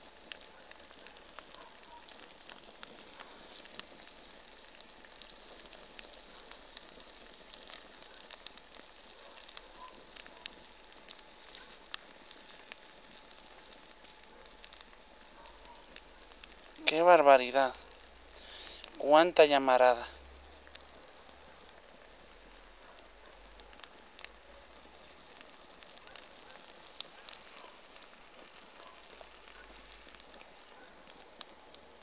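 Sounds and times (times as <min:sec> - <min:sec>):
bonfire crackling and popping: 0:00.0 - 0:32.0.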